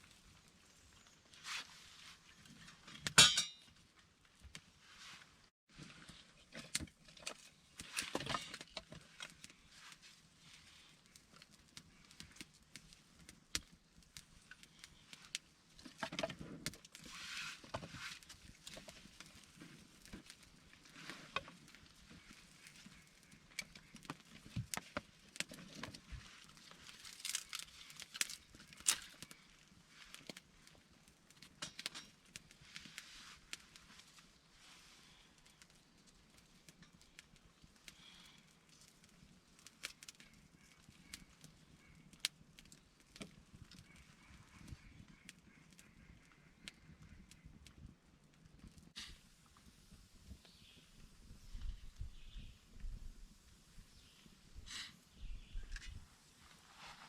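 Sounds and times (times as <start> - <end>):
rustling of things handled: 0.0 - 41.4, 55.6 - 57.0.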